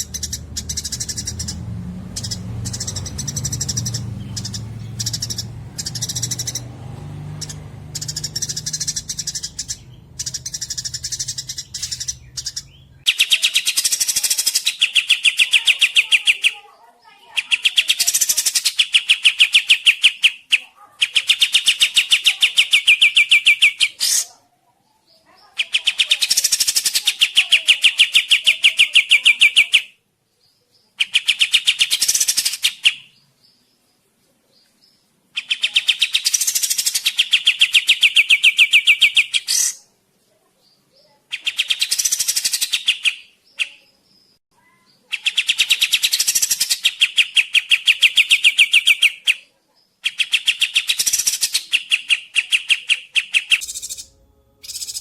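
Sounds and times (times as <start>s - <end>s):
songbird trilling: 0.0s - 16.6s, 35.4s - 39.9s, 41.0s - 49.4s, 50.1s - 55.0s.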